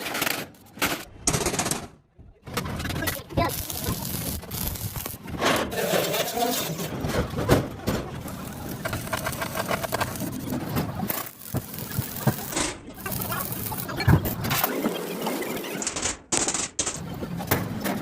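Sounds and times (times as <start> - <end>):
rough machine noise: 3.0 - 15.0.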